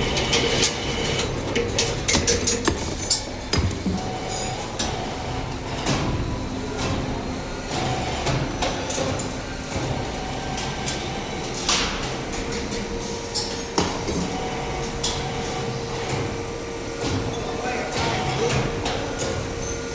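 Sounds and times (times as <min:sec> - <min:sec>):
machinery hum: 0:00.0 - 0:19.9.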